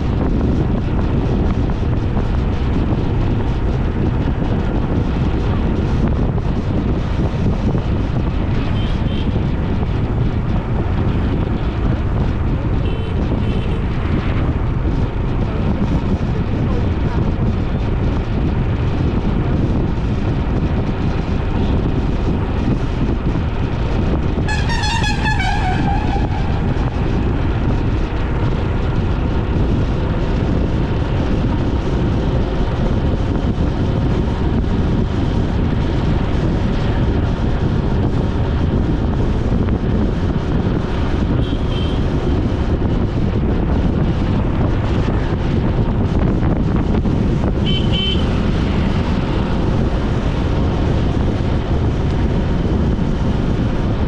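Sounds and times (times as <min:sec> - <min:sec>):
road traffic noise: 0:00.0 - 0:54.0
wind on microphone: 0:00.0 - 0:54.0
vehicle horn: 0:08.7 - 0:09.3, 0:12.8 - 0:13.9, 0:24.5 - 0:27.0, 0:41.4 - 0:42.0, 0:47.6 - 0:48.4.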